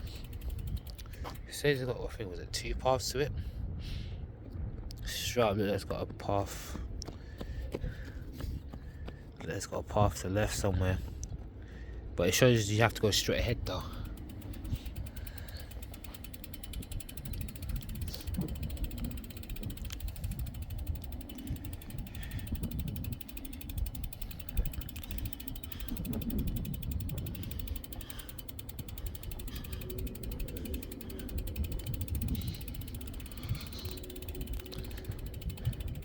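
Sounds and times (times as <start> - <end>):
bicycle freewheel ticking: 0.0 - 1.8, 12.5 - 36.0.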